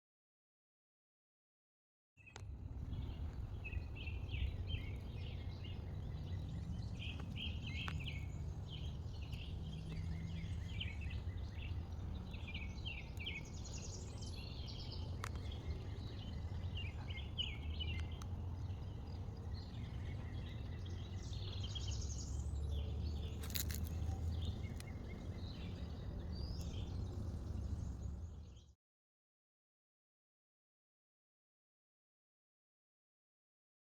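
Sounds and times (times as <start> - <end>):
small birds chirping: 2.2 - 28.8
steady low rumble: 2.4 - 28.5.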